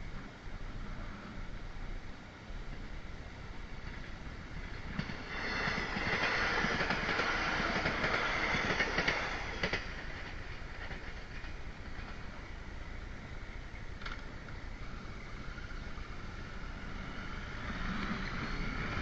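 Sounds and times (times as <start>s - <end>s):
steady train ride noise: 0.0s - 19.0s
train wheels clattering over rails: 3.8s - 12.4s, 13.9s - 16.1s.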